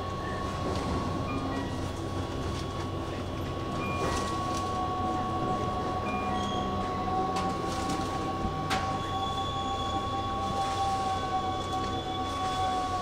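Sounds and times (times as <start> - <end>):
lower tone: 0.0 - 13.0
train equipment low drone: 0.0 - 13.0
steady high tone: 2.9 - 12.9.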